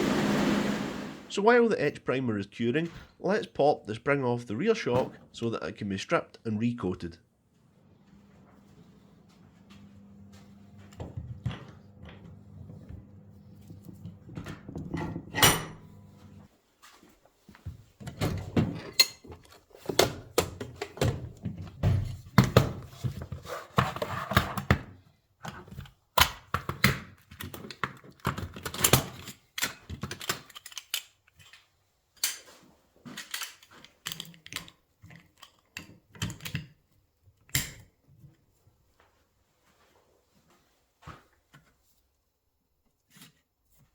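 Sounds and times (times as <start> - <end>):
metal tools clanking: 14.8 - 16.0.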